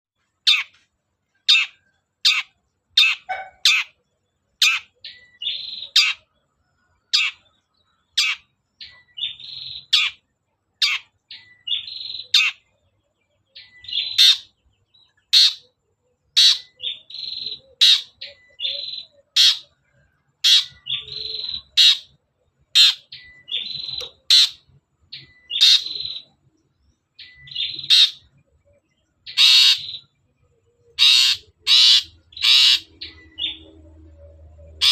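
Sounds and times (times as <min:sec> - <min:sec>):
shrike buzzy chattering: 0:16.4 - 0:19.7, 0:20.4 - 0:26.3.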